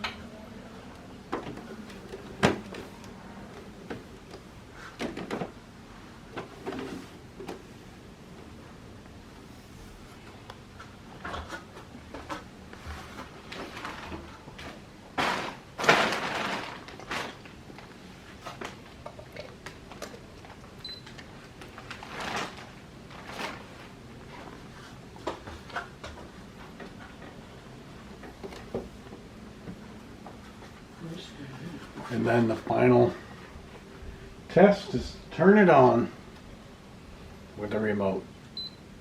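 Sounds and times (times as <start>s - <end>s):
scraping rustle: 21.6s - 25.9s.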